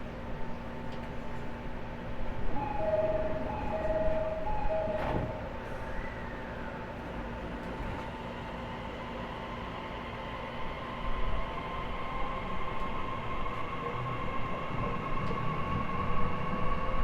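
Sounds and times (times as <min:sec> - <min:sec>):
two-note door chime: 0:02.6 - 0:05.5
train doors shutting with a knock: 0:02.6 - 0:06.4.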